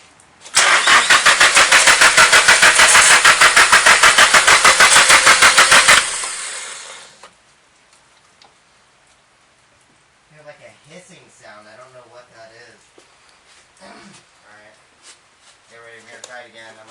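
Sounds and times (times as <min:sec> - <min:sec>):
engine cranking on starter: 0:00.5 - 0:07.3.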